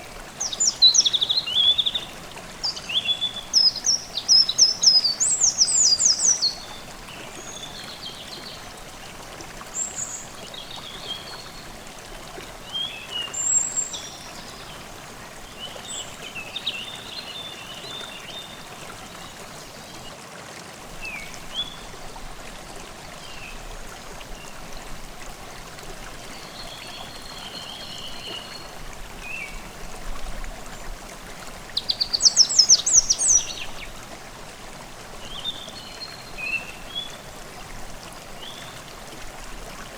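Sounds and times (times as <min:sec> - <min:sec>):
stream babbling: 0:00.0 - 0:39.9
birds chirping: 0:31.7 - 0:33.8.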